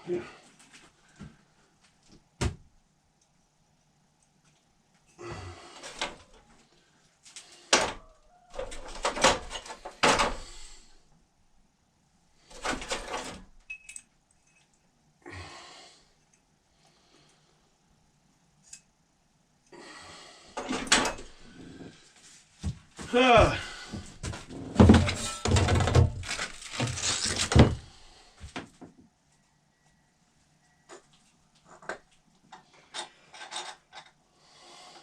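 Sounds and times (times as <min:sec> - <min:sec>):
tools scraping and clattering: 0:08.6 - 0:10.7, 0:12.5 - 0:14.8, 0:20.6 - 0:22.0, 0:24.0 - 0:28.0, 0:32.6 - 0:34.2.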